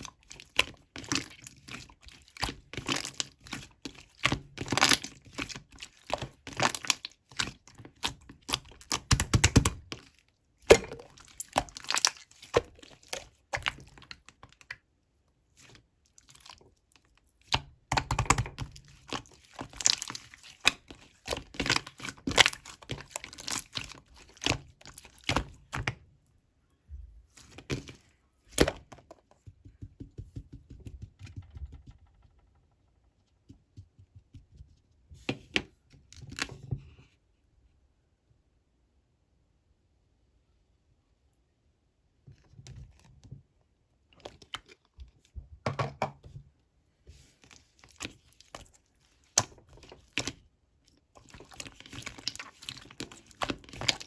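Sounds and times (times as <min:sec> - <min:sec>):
slime squished by hand: 0:00.0 - 0:14.7, 0:15.6 - 0:26.0, 0:51.0 - 0:54.0.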